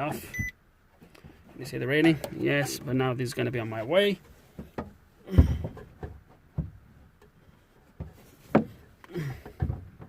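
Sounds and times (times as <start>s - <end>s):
objects knocking and thumping: 4.5s - 10.0s.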